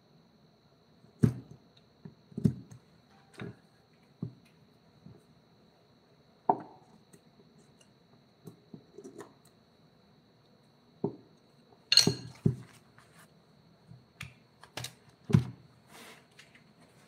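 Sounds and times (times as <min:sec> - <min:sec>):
faint high whine: 0:00.0 - 0:14.6.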